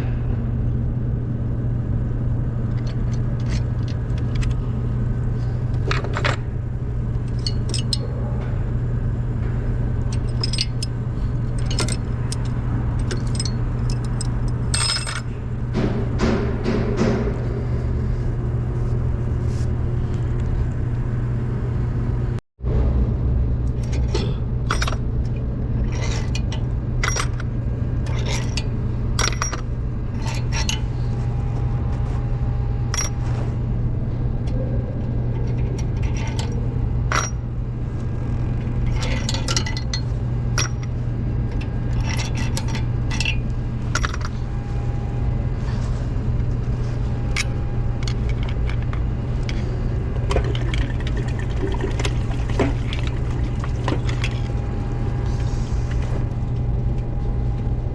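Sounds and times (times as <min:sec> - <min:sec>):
low hum: 0:00.0 - 0:57.9
metal tools clinking and scraping: 0:07.2 - 0:08.1, 0:10.1 - 0:15.4, 0:25.8 - 0:30.9, 0:32.9 - 0:33.3, 0:35.3 - 0:37.4, 0:38.8 - 0:40.9, 0:41.9 - 0:44.4.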